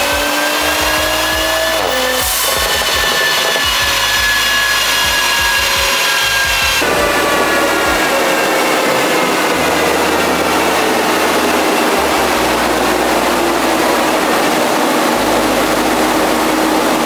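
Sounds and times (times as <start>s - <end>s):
raspy engine and exhaust: 0.0s - 17.0s.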